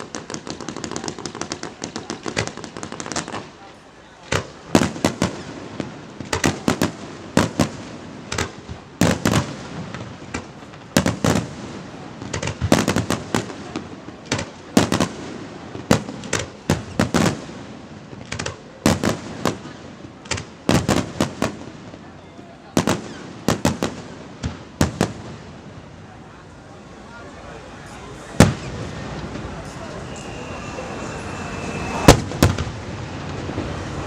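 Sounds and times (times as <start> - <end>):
fireworks shells bursting: 27.9 - 34.0.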